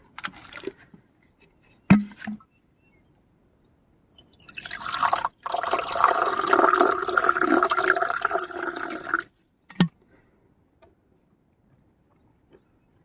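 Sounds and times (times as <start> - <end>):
water pouring into a container: 4.3 - 9.3.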